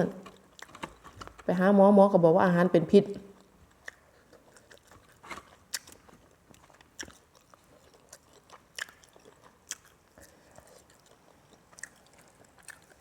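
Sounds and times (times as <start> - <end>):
crunchy chewing: 3.4 - 13.0.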